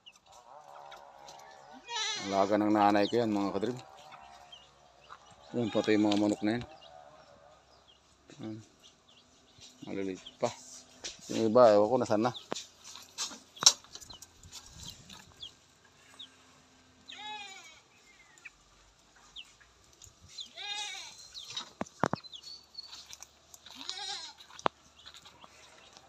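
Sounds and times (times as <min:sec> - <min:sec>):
goat bleating: 0:01.7 - 0:04.6, 0:05.5 - 0:06.4, 0:17.1 - 0:17.9, 0:20.5 - 0:21.3, 0:23.6 - 0:24.6.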